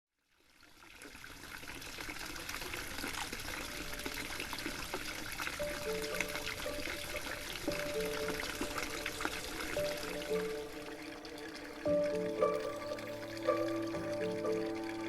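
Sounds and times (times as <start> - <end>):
water trickling and splashing: 0.2 - 15.0
music with long held notes: 5.6 - 15.0.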